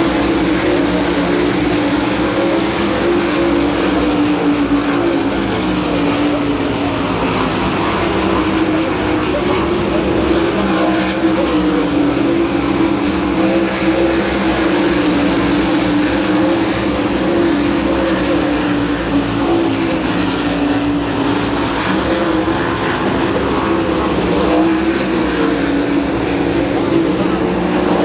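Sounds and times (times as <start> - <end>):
racing car engines droning: 0.0 - 28.0.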